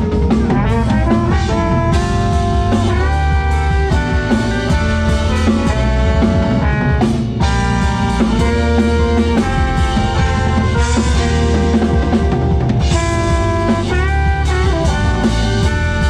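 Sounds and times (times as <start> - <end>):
drum kit beat: 0.0 - 16.0
guitar: 0.0 - 16.0
held band chords: 0.0 - 16.0.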